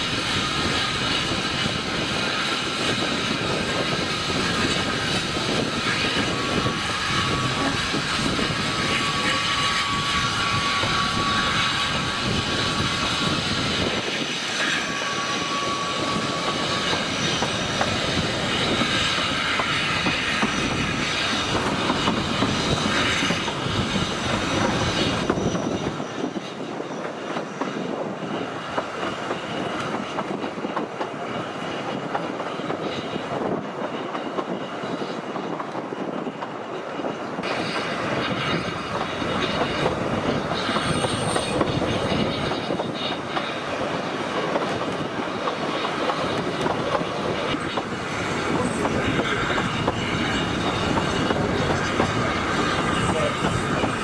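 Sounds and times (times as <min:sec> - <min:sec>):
high squeal: 0:00.0 - 0:54.0
train wheels rumbling on rails: 0:00.0 - 0:54.0.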